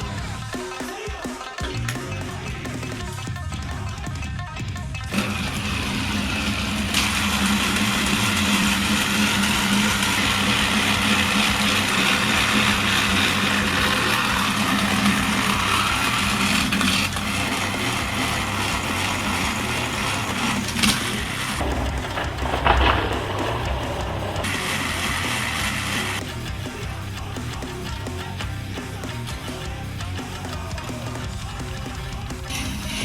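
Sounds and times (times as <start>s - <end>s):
toy train motors whirring: 5.1s - 26.2s, 32.4s - 33.0s
wheels on plastic track: 5.1s - 26.3s, 30.3s - 33.0s.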